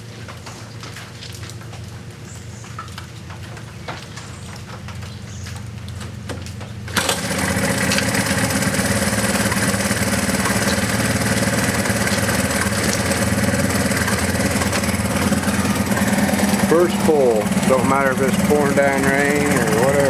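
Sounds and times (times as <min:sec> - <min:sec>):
engine starting and idling: 0:06.9 - 0:20.0.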